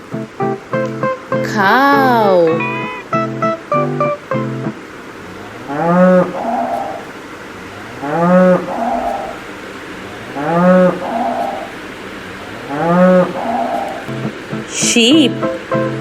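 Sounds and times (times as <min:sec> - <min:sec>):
cow mooing: 0:05.3 - 0:07.1, 0:07.7 - 0:09.5, 0:10.2 - 0:11.8, 0:12.4 - 0:14.1.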